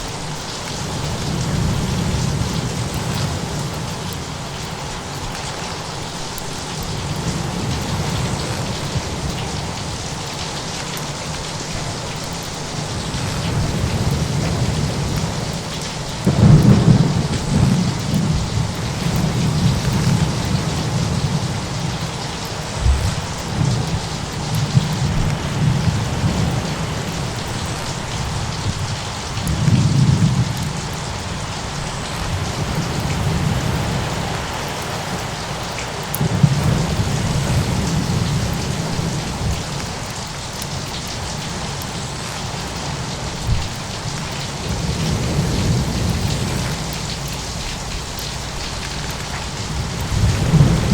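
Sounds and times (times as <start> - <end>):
rain hiss: 0.0 - 50.9
thunder rolling: 12.9 - 34.7, 36.2 - 39.7, 44.7 - 50.9.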